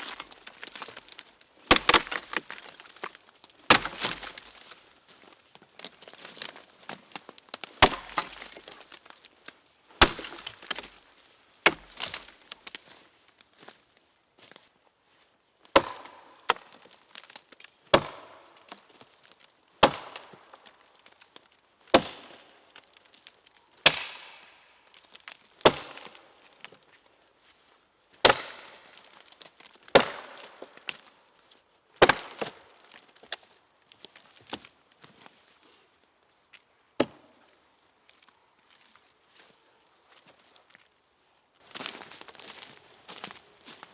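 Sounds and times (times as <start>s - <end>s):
axe chopping wood: 0.0s - 4.8s, 5.8s - 9.2s, 10.0s - 11.0s, 11.6s - 12.8s, 15.8s - 16.8s, 17.9s - 18.8s, 19.8s - 20.4s, 22.0s - 22.5s, 23.9s - 24.5s, 25.6s - 26.2s, 28.2s - 29.0s, 29.9s - 31.0s, 32.0s - 32.6s, 37.0s - 37.3s
crackling rustle: 41.6s - 43.9s.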